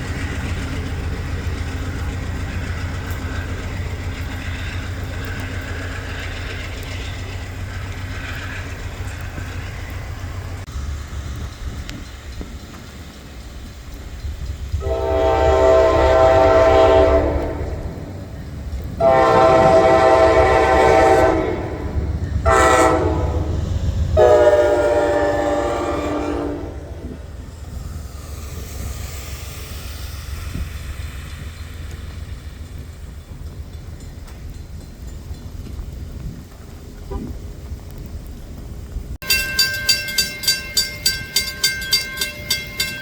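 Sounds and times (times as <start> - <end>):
train rumbling: 0.0 - 43.0
train air horn: 14.8 - 17.9, 19.0 - 23.6, 24.2 - 27.2.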